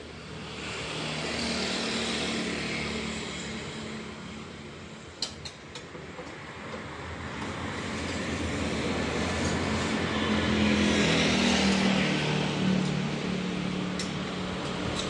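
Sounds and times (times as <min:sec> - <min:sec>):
vehicle engine drone: 0:06.1 - 0:15.0.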